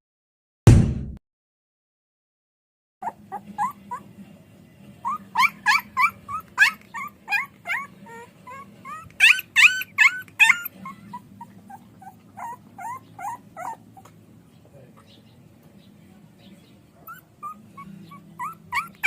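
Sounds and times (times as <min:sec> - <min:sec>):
puppy whimpering and yelping: 0:03.0 - 0:04.2, 0:05.0 - 0:14.2, 0:17.0 - 0:19.0.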